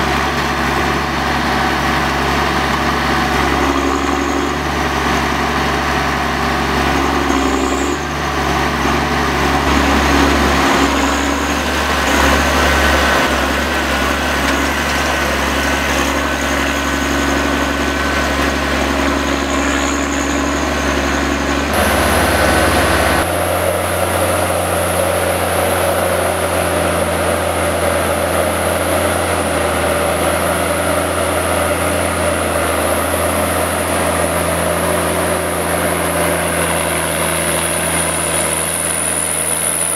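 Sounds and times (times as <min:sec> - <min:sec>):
diesel engine running: 0:00.0 - 0:39.9
steady high whine: 0:09.4 - 0:39.9.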